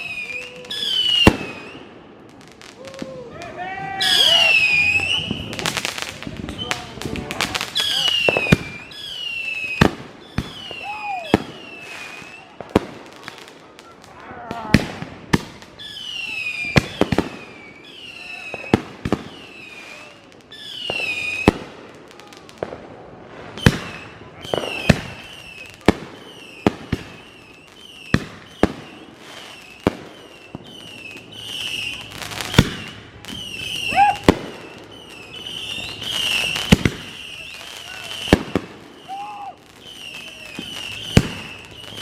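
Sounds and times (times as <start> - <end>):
fireworks whistles falling in pitch: 0.0 - 2.1, 3.8 - 13.0, 15.8 - 21.7, 23.5 - 42.0
fireworks bangs and pops: 0.0 - 42.0
high wavering whistle: 4.0 - 5.6.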